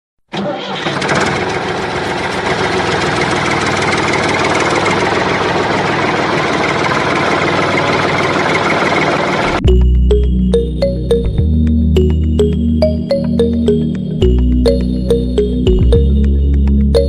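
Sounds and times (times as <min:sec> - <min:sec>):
tractor engine idling: 0:00.3 - 0:09.6.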